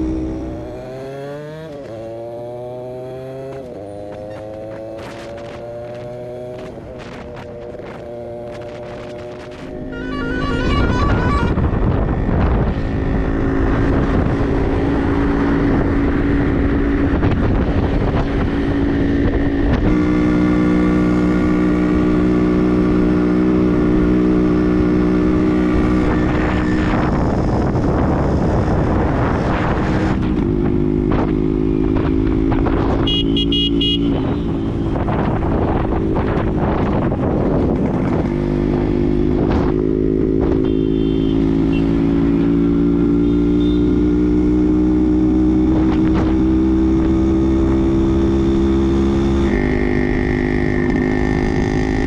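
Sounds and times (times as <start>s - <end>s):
high-pitched buzz: 9.0s - 12.2s.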